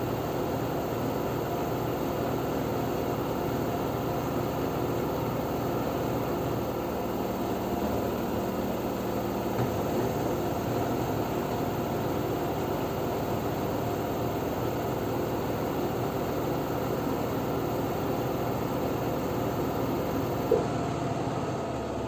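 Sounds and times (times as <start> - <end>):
washing machine spinning: 0.0 - 22.0
short knock: 9.6 - 10.2.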